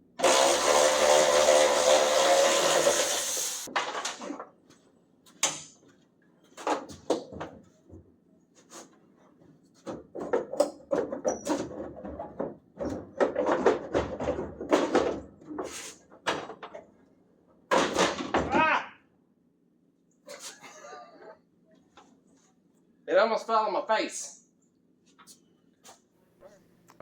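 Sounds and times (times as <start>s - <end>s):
motor running: 0.2s - 3.7s
knocks and clatter: 9.7s - 17.0s.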